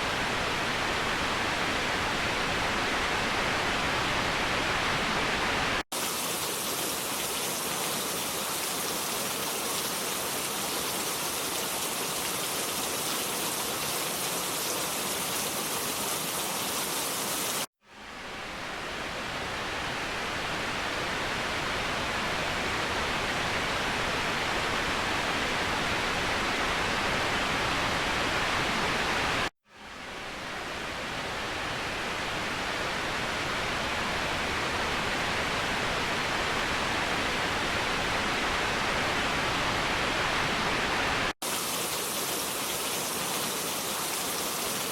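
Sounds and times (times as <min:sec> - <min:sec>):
waterfall rushing: 0:05.9 - 0:17.7, 0:41.0 - 0:44.9.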